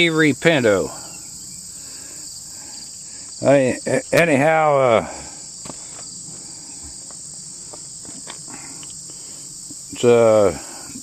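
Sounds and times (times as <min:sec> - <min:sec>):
man speaking: 0:00.0 - 0:01.0, 0:03.4 - 0:05.3, 0:10.0 - 0:10.8
high-pitched insect chorus: 0:00.0 - 0:11.0.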